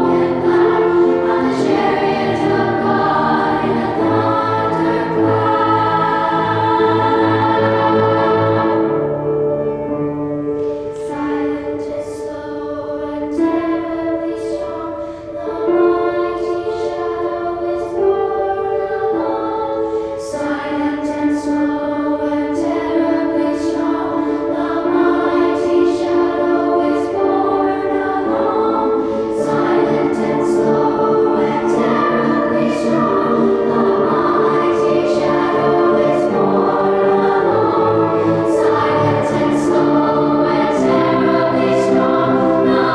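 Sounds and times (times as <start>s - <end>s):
children's choir singing: 0.0s - 42.9s.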